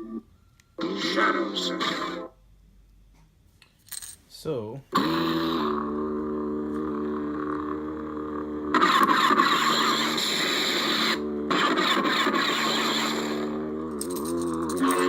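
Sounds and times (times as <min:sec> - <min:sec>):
lightsaber blade hum: 0:05.1 - 0:15.0.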